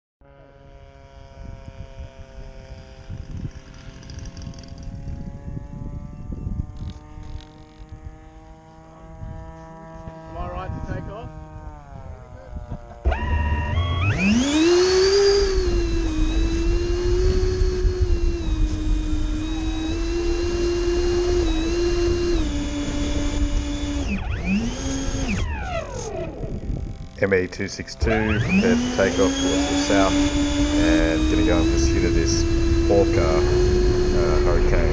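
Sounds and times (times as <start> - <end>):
electric ducted fans whining: 1.0 - 34.9
low rumbling buffeting: 26.8 - 34.9.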